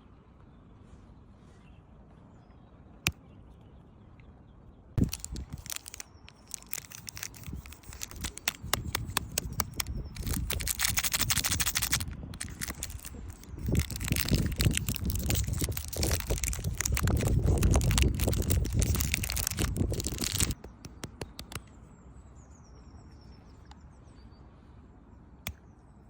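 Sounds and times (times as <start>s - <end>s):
wrapper crinkling and tearing: 5.0s - 20.6s.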